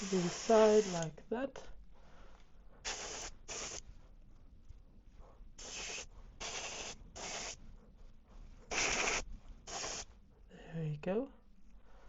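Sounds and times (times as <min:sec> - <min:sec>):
airbrush spraying hiss: 0:00.0 - 0:01.2, 0:02.8 - 0:03.8, 0:05.6 - 0:07.6, 0:08.7 - 0:10.1.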